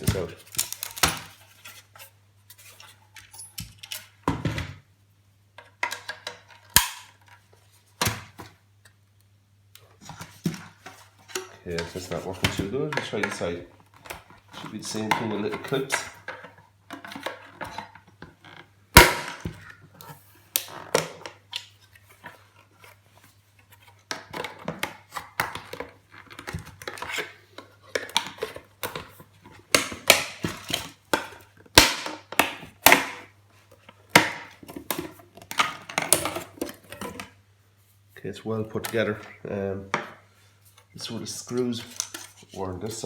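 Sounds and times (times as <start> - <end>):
plastic casing clicks and scraping: 0.2 - 1.4, 23.8 - 37.4, 41.5 - 42.6.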